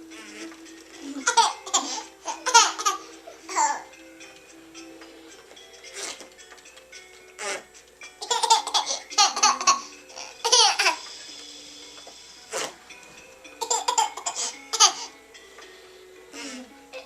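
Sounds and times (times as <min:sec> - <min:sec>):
baby laughing and squealing: 0:01.0 - 0:03.9, 0:07.4 - 0:11.0.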